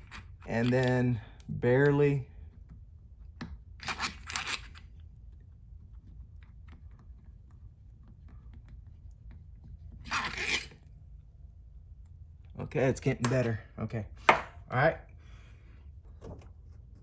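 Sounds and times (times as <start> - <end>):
low steady hum: 0.0 - 17.0
tool clicking and scraping: 9.9 - 10.9.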